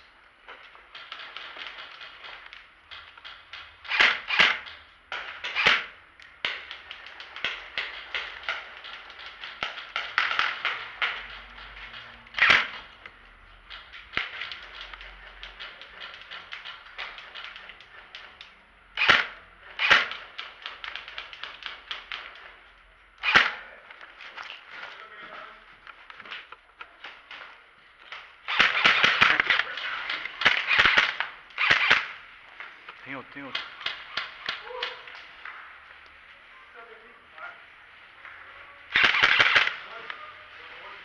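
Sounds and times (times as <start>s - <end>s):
airsoft guns snapping shots: 0.9s - 13.0s, 13.7s - 22.5s, 23.2s - 23.7s, 28.1s - 32.2s, 32.8s - 35.3s, 38.9s - 39.8s
loud sharp gun cracks: 3.8s - 12.9s, 19.0s - 22.4s, 23.2s - 23.8s, 28.4s - 32.2s, 33.5s - 35.2s, 38.9s - 39.9s.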